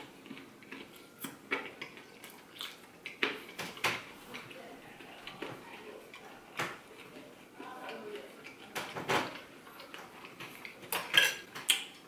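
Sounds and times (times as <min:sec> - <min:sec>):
chewing with wet lip smacking: 0:00.0 - 0:12.0.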